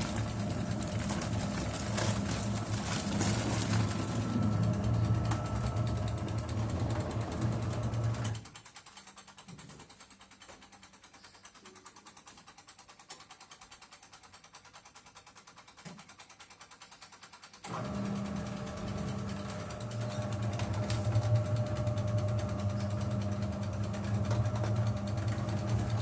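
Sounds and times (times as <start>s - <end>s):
washing machine motor humming: 0.0s - 8.6s, 17.7s - 26.0s.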